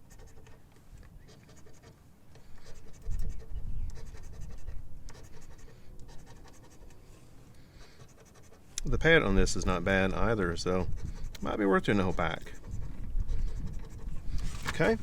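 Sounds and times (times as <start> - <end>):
scraping scratch-off ticket: 13.5 - 15.0.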